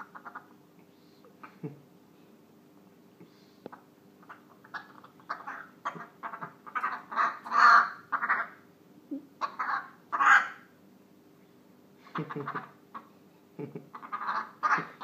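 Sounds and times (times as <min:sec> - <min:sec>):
parrot squawking: 0:00.0 - 0:00.5, 0:04.2 - 0:08.6, 0:09.4 - 0:10.7, 0:12.1 - 0:13.1, 0:13.9 - 0:15.0.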